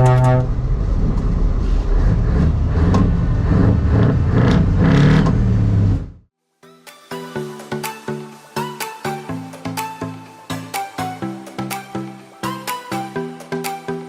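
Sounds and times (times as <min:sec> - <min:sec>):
heavy truck engine droning: 0:00.0 - 0:06.3.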